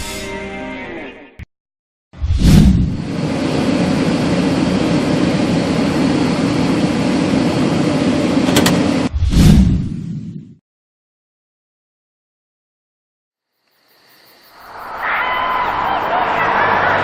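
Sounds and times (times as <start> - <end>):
vehicle engine running: 2.9 - 9.1.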